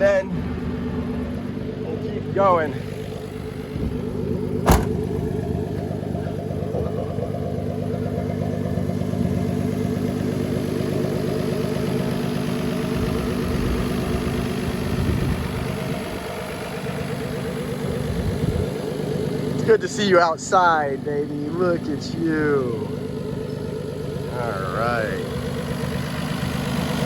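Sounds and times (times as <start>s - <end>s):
car engine idling: 0.0s - 27.0s
sharp knock: 4.6s - 5.0s.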